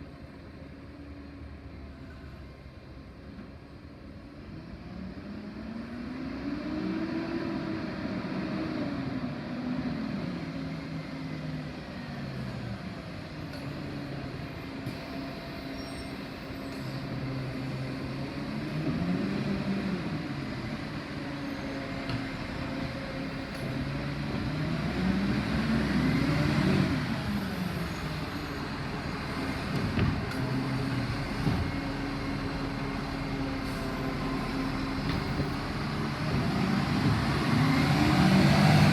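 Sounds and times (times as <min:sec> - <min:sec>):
diesel truck engine revving: 0:18.0 - 0:38.9.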